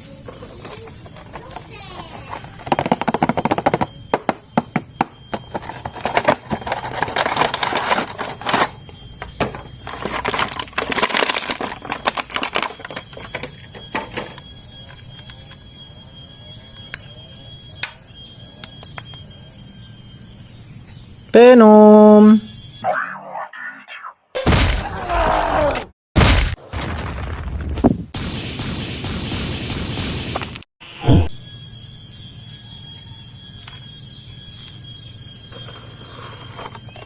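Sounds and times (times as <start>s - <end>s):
plastic packaging crinkling: 9.9s - 13.5s.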